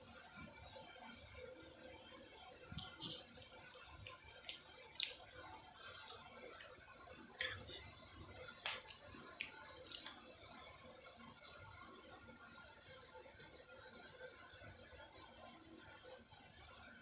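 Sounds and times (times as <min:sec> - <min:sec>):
person chewing noodles: 0:04.0 - 0:10.2.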